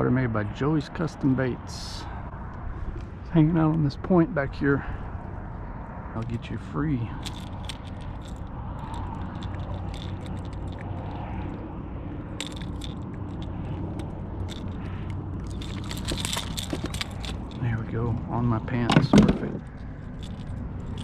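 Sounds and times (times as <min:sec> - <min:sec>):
steady low rumble: 0:01.4 - 0:21.0
fishing lure clicks and metallic rattles: 0:07.2 - 0:11.6, 0:12.3 - 0:17.6, 0:19.6 - 0:21.0.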